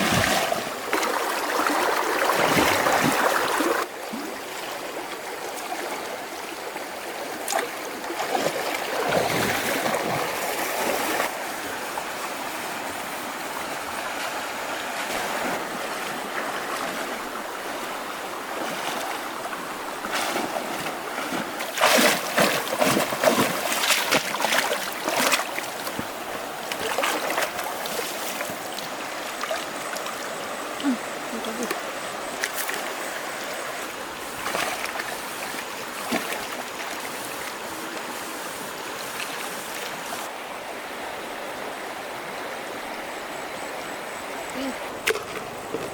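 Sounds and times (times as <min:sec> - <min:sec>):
stream water flowing: 0:00.0 - 0:45.9
short sharp splashes: 0:20.1 - 0:26.0.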